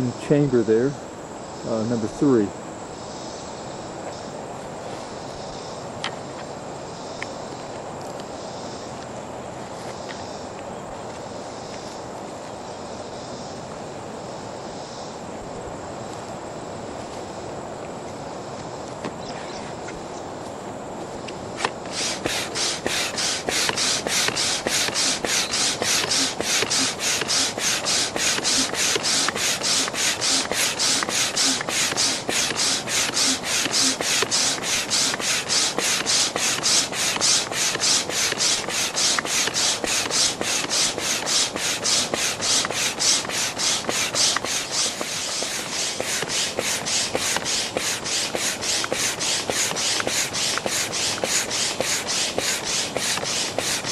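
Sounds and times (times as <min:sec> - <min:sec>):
manual air pump whooshes: 0:19.3 - 0:53.9
pump click: 0:21.6 - 0:53.9.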